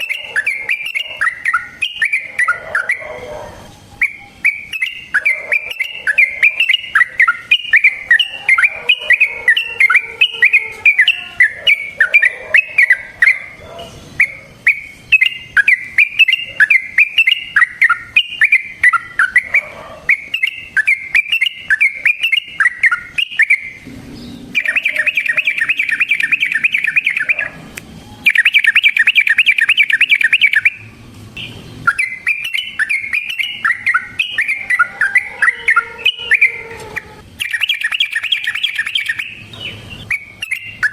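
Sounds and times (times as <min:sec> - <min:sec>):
bird chirping phrases: 0:00.0 - 0:40.9
bird rattling trills: 0:24.6 - 0:27.5, 0:28.2 - 0:30.8, 0:31.4 - 0:40.9.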